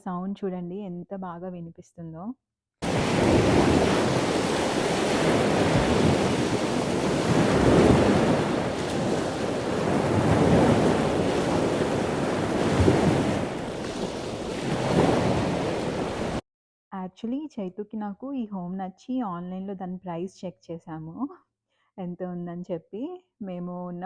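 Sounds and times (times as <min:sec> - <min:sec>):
ocean waves breaking: 0:02.8 - 0:16.4.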